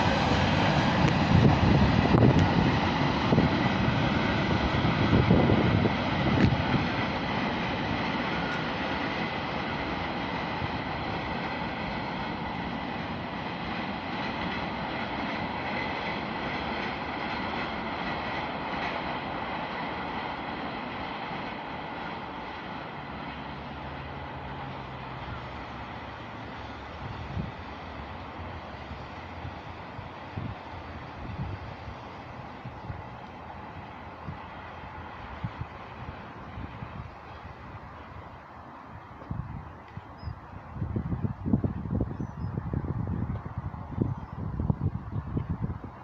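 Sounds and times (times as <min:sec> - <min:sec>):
freight train rolling past: 0:00.0 - 0:46.0.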